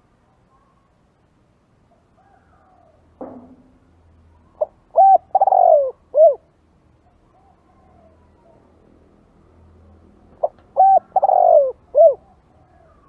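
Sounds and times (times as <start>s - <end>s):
dove cooing: 4.5s - 8.7s, 10.3s - 13.0s.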